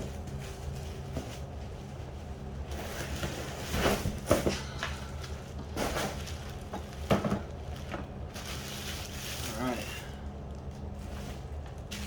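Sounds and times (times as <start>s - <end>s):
steady low hum: 0.0s - 12.0s
packaging rustling and scraping: 2.6s - 4.6s, 5.4s - 10.0s.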